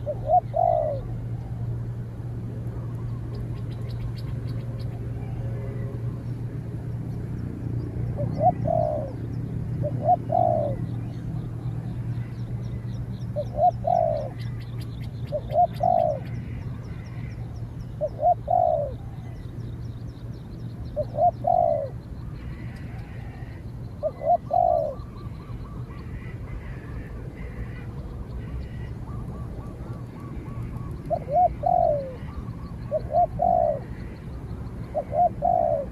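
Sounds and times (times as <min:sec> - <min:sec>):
dove cooing: 0:00.0 - 0:01.7, 0:08.1 - 0:11.0, 0:13.3 - 0:14.6, 0:15.2 - 0:17.4, 0:18.0 - 0:19.4, 0:21.0 - 0:35.9
small birds chirping: 0:02.8 - 0:06.4, 0:07.1 - 0:35.9.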